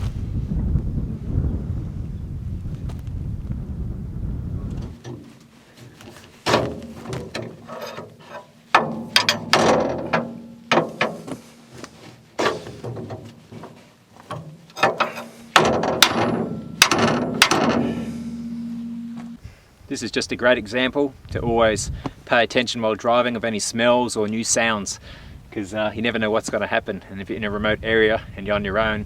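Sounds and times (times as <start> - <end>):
jack ratcheting metallic clacks: 6.5 - 11.4, 14.3 - 18.4.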